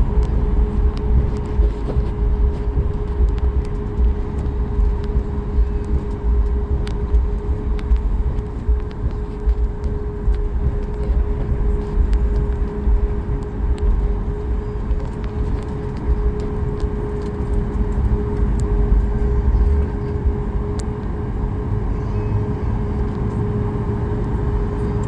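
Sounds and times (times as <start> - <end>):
constant hum: 0.0 - 25.0
jet cabin rumble: 0.0 - 25.0.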